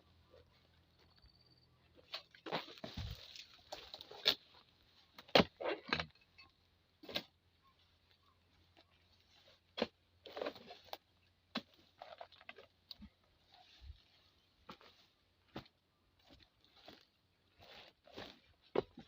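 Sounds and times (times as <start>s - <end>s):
leaves rustling: 2.2s - 4.7s.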